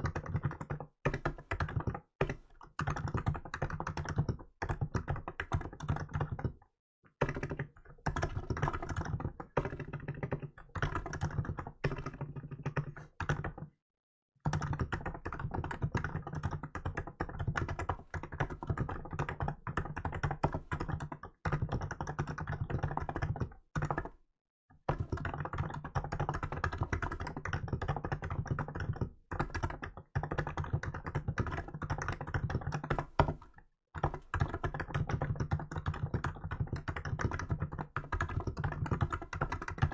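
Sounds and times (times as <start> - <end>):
fast keyboard typing: 0.0 - 6.6, 7.2 - 13.7, 14.4 - 24.2, 24.8 - 39.9.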